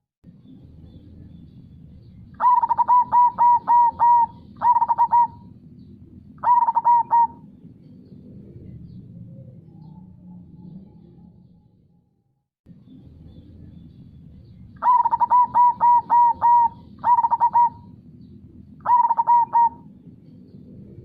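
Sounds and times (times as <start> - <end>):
dove cooing: 2.4 - 5.5, 6.4 - 7.5, 14.8 - 18.0, 18.7 - 20.1.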